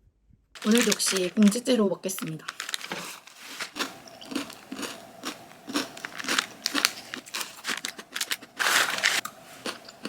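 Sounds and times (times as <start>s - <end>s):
crunchy snack being chewed: 2.4s - 10.0s.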